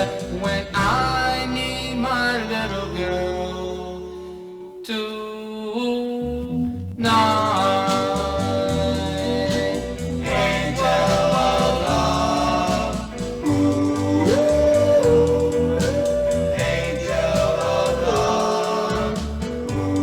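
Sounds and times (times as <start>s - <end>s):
wordless group vocal harmony: 0.0s - 5.0s, 7.0s - 20.0s
instrumental backing: 7.0s - 20.0s.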